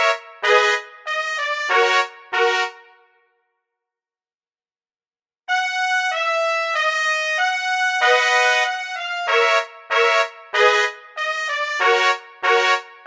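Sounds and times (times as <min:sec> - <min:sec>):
solo trumpet notes: 0:00.0 - 0:02.9, 0:05.5 - 0:13.0.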